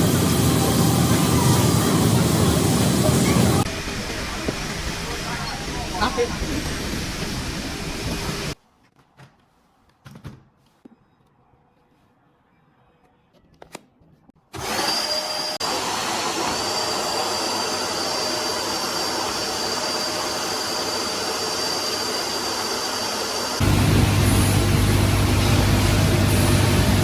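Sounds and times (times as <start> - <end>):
vacuum cleaner motor running: 0.0 - 8.6, 14.6 - 27.0.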